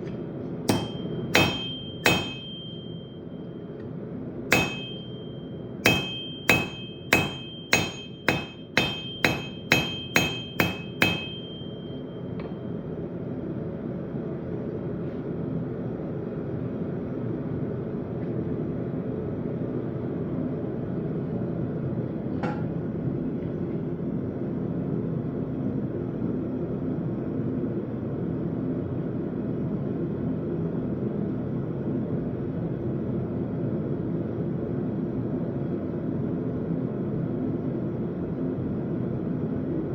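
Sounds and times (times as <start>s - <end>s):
hammer ringing on anvil: 0.7s - 3.5s, 4.5s - 12.7s.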